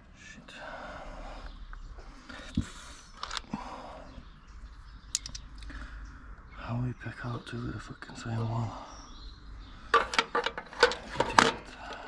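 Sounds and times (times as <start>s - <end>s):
metal hand tools clicking: 5.1s - 5.5s.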